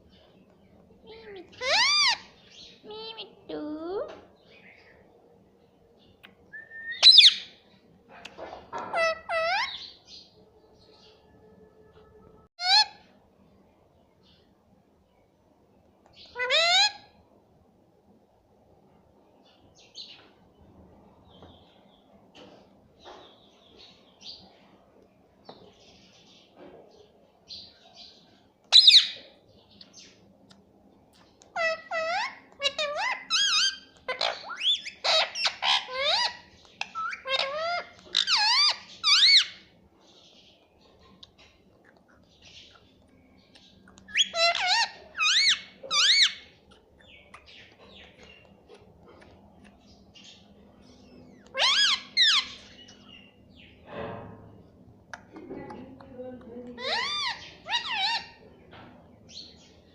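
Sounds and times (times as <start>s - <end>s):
parakeet chirping: 1.0s - 3.3s, 6.7s - 7.6s, 8.8s - 10.3s, 16.2s - 17.0s, 28.7s - 29.2s, 31.5s - 39.7s, 43.6s - 48.6s, 50.0s - 53.7s, 56.8s - 58.5s
parakeet soft chirps: 6.2s - 7.6s, 43.6s - 48.6s.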